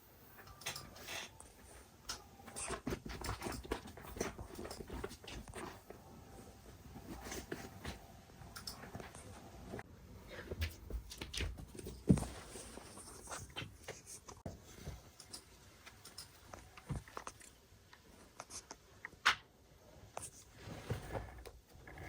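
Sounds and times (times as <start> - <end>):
kittens scuffling and pattering: 0.4 - 6.0, 6.7 - 18.8.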